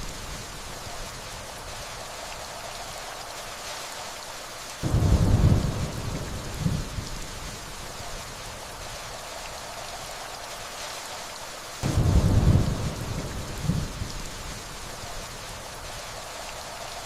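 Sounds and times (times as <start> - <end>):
steady rainfall: 0.0 - 17.0
distant thunder rumble: 4.8 - 7.6, 11.8 - 14.5.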